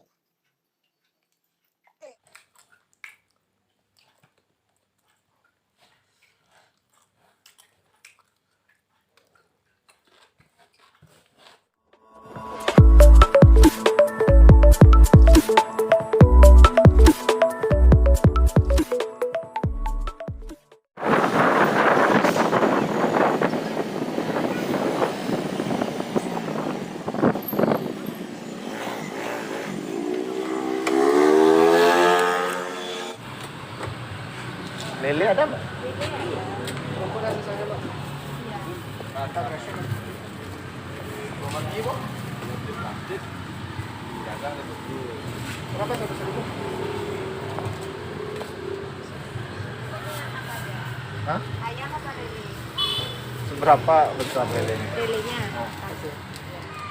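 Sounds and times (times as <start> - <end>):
person chewing: 1.3 - 11.7
loud music with a beat: 12.4 - 20.7
street traffic noise: 21.0 - 56.9
motorcycle engine revving: 21.2 - 33.2, 45.4 - 49.8.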